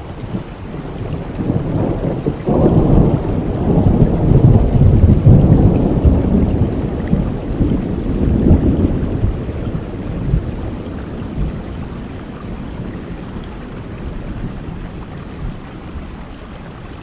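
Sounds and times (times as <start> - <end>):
thunder rumbling: 0.0 - 16.3
steady rain: 0.0 - 17.0.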